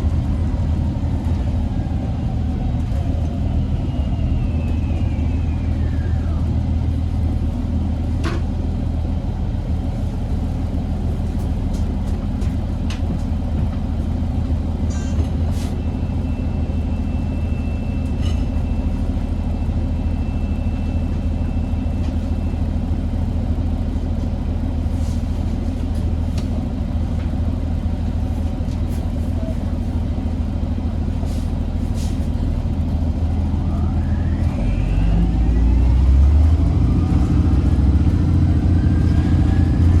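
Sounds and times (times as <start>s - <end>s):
bus diesel engine rumble: 0.0s - 40.0s
hybrid drive whine: 33.4s - 40.0s.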